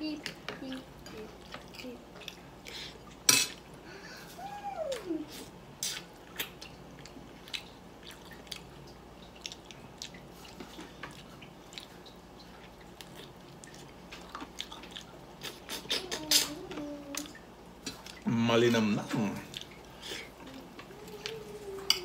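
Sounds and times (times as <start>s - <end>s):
wet chewing and lip-smacking: 4.9s - 16.5s, 19.4s - 21.5s.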